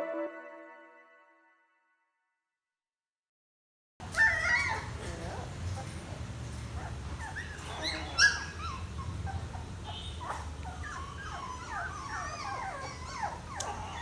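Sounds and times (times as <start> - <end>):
puppies whimpering: 4.1 - 6.0, 6.8 - 14.0.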